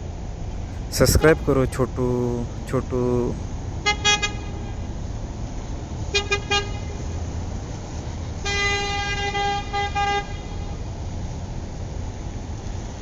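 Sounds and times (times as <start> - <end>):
steady low rumble: 0.0 - 6.1
vehicle horn tooting: 1.0 - 1.8, 3.8 - 4.9, 6.1 - 7.1, 8.4 - 10.8.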